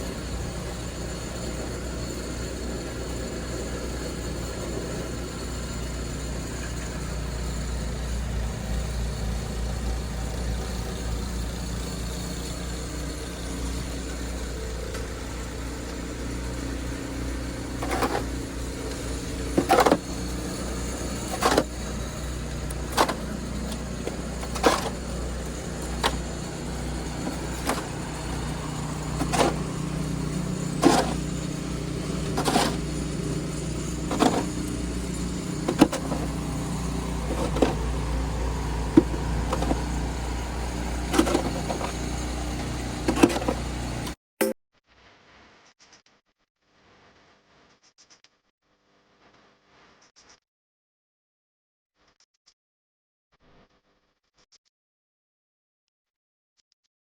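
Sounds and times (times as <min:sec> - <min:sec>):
low mechanical hum: 0:00.0 - 0:44.2
snow shovel scraping: 0:00.0 - 0:44.2.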